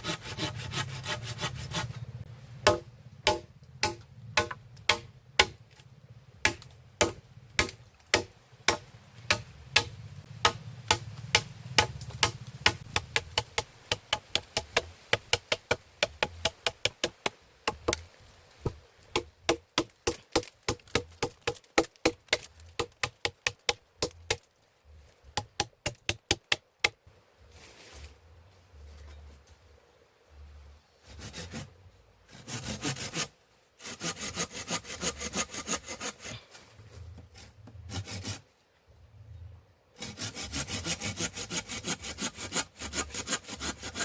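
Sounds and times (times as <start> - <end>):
hand tool striking wood: 2.6 - 5.8, 6.4 - 24.4.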